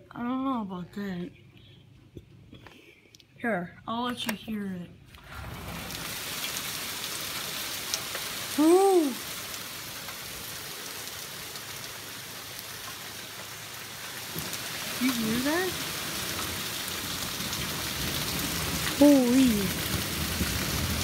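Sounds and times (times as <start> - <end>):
heavy rain pouring: 5.2 - 21.0.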